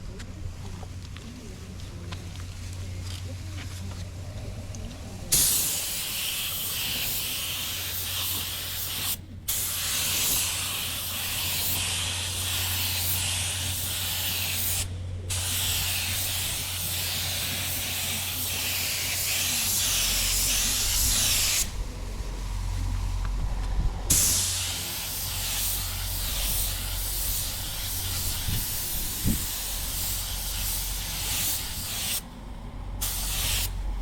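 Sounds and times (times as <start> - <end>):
steady low hum: 0.0 - 34.0
paint spray hissing: 5.3 - 21.8, 24.1 - 32.2, 33.0 - 33.9.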